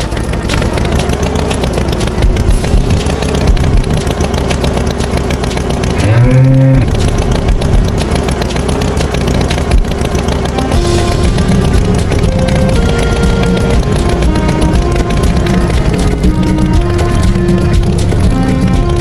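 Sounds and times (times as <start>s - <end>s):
tractor engine running: 0.0s - 19.0s
bull mooing: 6.0s - 7.0s.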